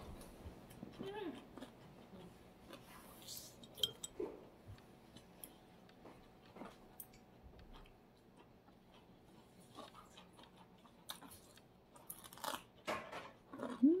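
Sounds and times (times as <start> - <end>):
chopsticks clinking on dishes: 3.6 - 4.3.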